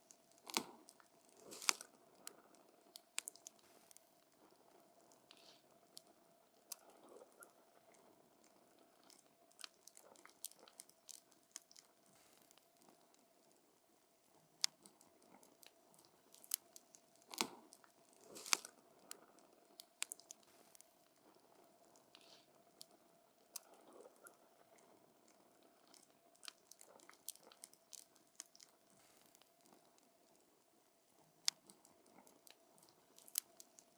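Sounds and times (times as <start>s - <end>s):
faint steady hiss: 0.0s - 33.9s.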